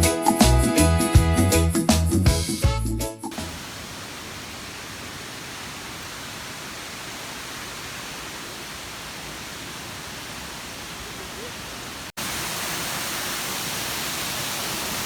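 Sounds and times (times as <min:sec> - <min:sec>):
waterfall rushing: 0:03.3 - 0:15.0.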